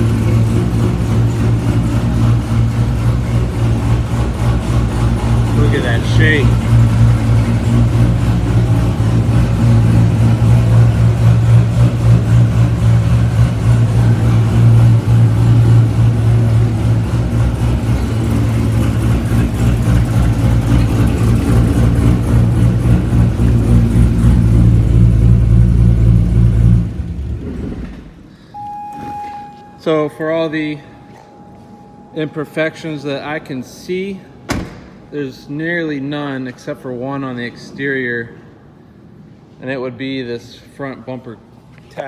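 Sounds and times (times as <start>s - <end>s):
loud engine idling: 0.0s - 27.6s.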